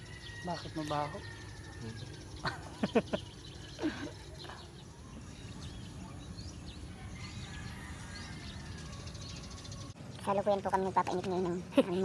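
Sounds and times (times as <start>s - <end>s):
outdoor background rumble: 0.0s - 12.0s.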